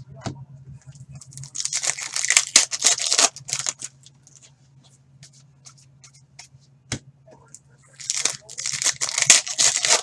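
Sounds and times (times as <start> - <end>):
cards rustling and flicking: 1.4 - 4.4, 8.0 - 10.0.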